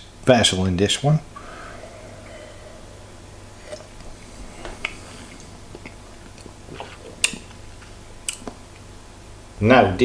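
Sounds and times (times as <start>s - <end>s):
mouth and lip smacks: 4.7s - 7.6s.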